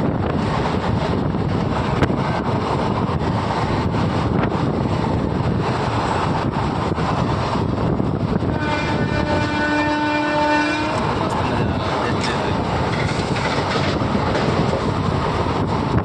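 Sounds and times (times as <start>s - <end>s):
steady rumbling noise: 0.0s - 16.0s
wind buffeting microphone: 0.0s - 16.0s
train horn: 8.5s - 11.2s.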